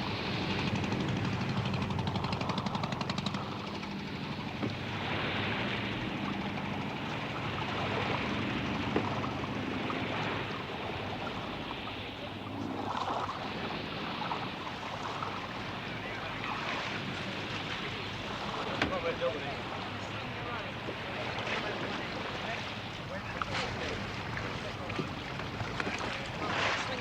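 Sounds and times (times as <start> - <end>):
engine running: 0.0 - 12.0
open sea: 0.0 - 27.0
wind: 0.0 - 27.0.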